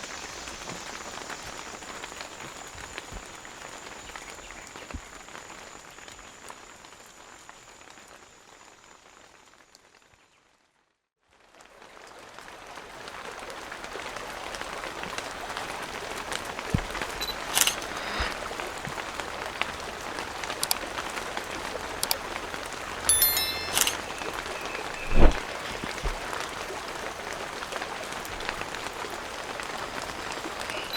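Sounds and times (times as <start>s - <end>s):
steady rain: 0.0s - 9.9s, 11.4s - 17.6s, 18.3s - 23.1s, 25.4s - 30.9s
sharp ticks: 22.0s - 22.2s, 23.1s - 25.4s.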